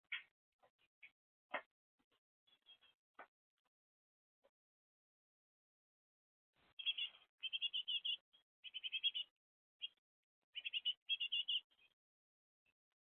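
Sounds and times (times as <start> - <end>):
songbird chirping: 2.5 - 3.3, 6.6 - 12.0.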